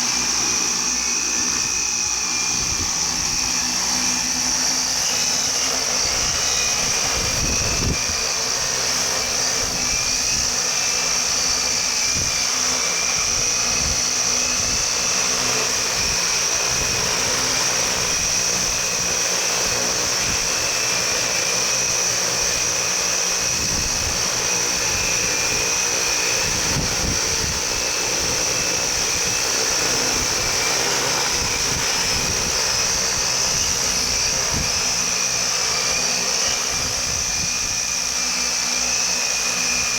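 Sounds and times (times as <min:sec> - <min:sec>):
drone propellers whining: 0:00.0 - 0:39.9
wind buffeting microphone: 0:02.4 - 0:03.8, 0:06.0 - 0:08.4, 0:13.2 - 0:20.7, 0:23.4 - 0:35.2, 0:36.5 - 0:37.9.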